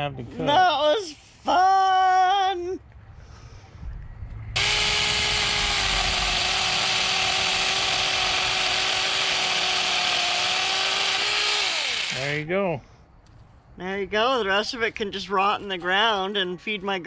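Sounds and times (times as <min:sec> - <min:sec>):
chainsaw motor whine: 0:04.6 - 0:12.4.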